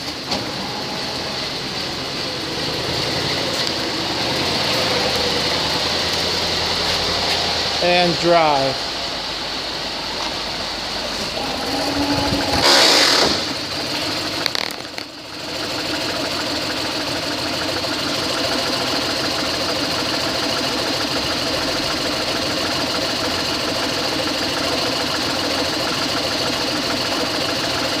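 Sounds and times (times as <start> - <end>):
car engine idling: 0.0 - 28.0
short rush of noise: 11.0 - 13.9.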